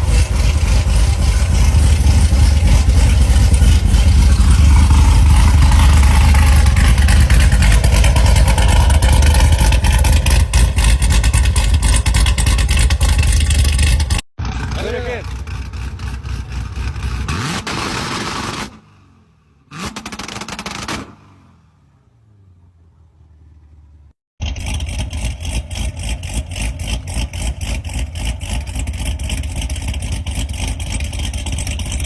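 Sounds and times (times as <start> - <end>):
car engine exhaust drone: 0.0 - 32.0.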